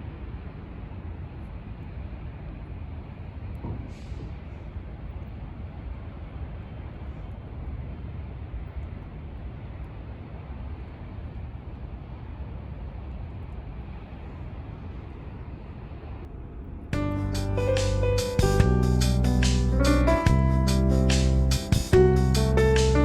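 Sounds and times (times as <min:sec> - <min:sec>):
hiss: 0:03.7 - 0:04.8
low rumble: 0:15.0 - 0:23.0.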